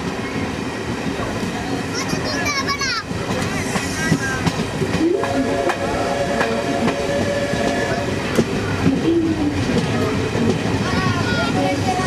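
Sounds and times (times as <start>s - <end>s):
rail clicks: 0.0s - 12.0s
train wheels rumbling on rails: 0.0s - 12.0s.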